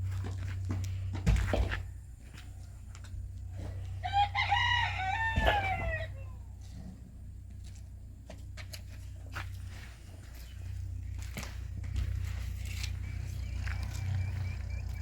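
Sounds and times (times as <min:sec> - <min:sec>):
steady low hum: 0:00.0 - 0:15.0
rooster crowing: 0:03.9 - 0:06.6.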